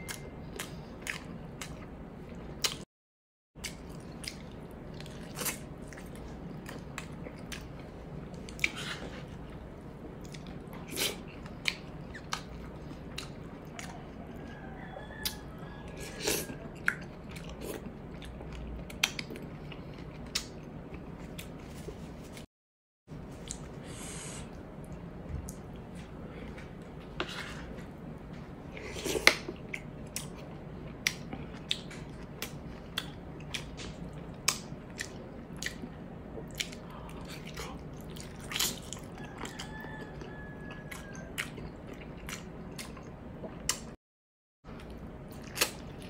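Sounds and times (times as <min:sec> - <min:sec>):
chewing and lip-smacking: 0:00.0 - 0:02.8, 0:03.6 - 0:09.6, 0:10.2 - 0:14.6, 0:15.2 - 0:21.7, 0:28.2 - 0:44.0.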